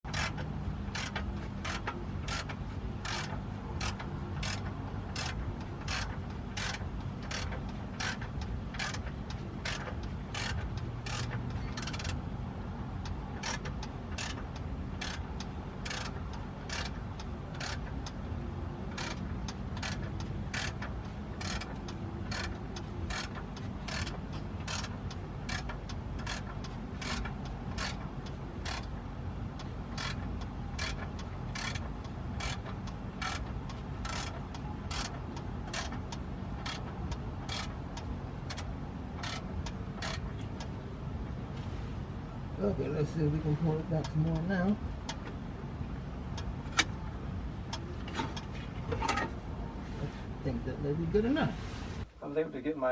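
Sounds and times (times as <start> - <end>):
ratchet wrench clicking: 0.1 - 12.3, 13.0 - 18.2, 18.9 - 40.3.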